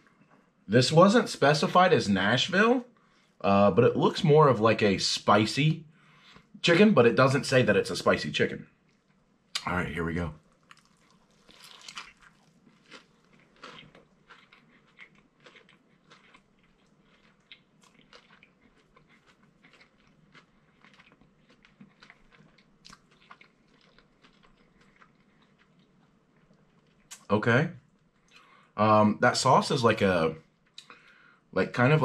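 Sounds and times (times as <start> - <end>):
quiet chewing with crisp clicks: 6.1 - 6.6, 8.6 - 9.7, 10.4 - 28.8, 30.4 - 31.4
biting into sandwich: 10.6 - 27.2.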